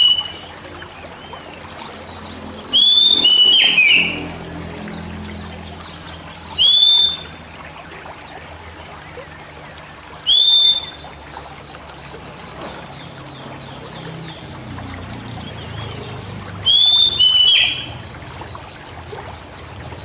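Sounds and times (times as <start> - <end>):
bird whistling: 0.0 - 0.6, 2.6 - 4.2, 6.4 - 7.4, 10.2 - 11.1, 16.6 - 18.0.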